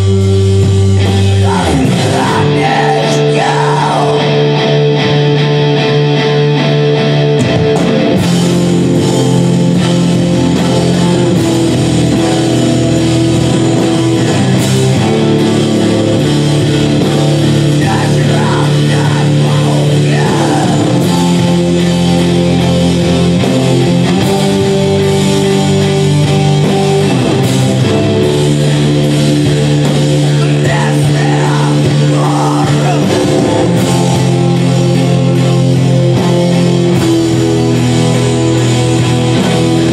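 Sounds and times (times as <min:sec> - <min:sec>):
distorted guitar chords: 0:00.0 - 0:39.9
person singing: 0:01.0 - 0:05.0, 0:17.6 - 0:21.8, 0:30.2 - 0:35.9.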